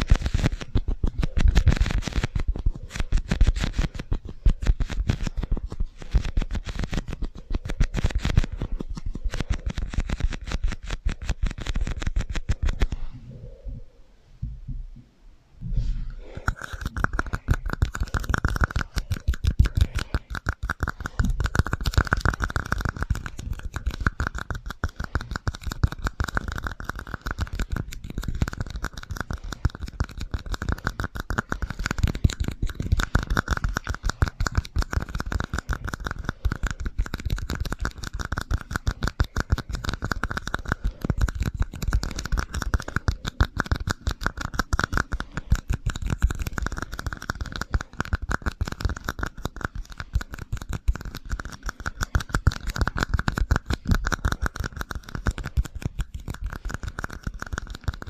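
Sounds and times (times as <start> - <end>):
tapping and scratching: 0.0 - 13.1, 16.2 - 58.0.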